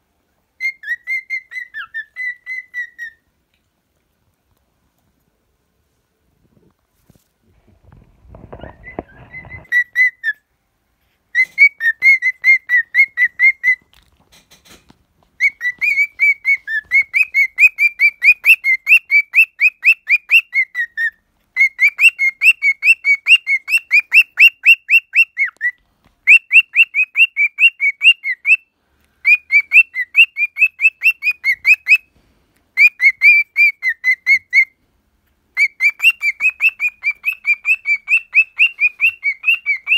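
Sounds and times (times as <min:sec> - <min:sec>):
cockatiel whistling chirps: 0:00.6 - 0:03.3, 0:08.4 - 0:10.5, 0:11.3 - 0:13.9, 0:15.4 - 0:32.1, 0:32.7 - 0:34.8, 0:35.5 - 0:39.9.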